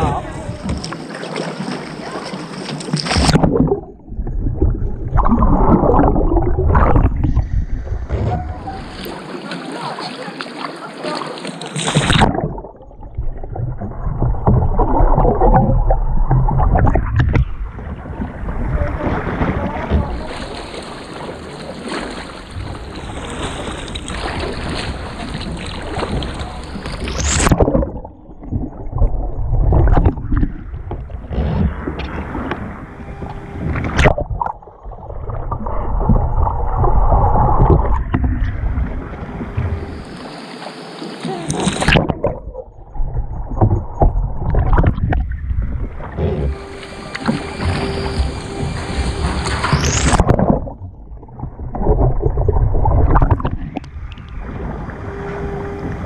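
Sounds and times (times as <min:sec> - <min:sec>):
water sloshing around a kayak: 0:00.0 - 0:56.0
heavy rumbling noise: 0:41.4 - 0:53.4.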